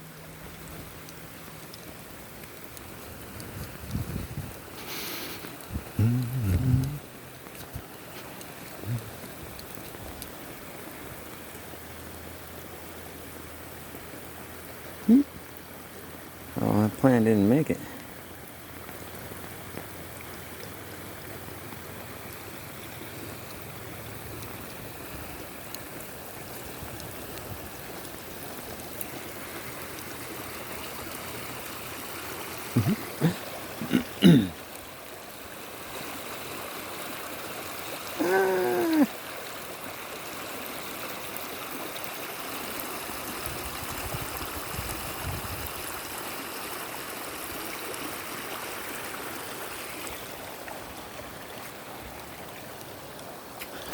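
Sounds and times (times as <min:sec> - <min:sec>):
rainwater rushing and trickling: 0:00.0 - 0:53.9
brief pitched vocal sounds: 0:05.9 - 0:07.1, 0:15.1 - 0:15.3, 0:38.2 - 0:39.1.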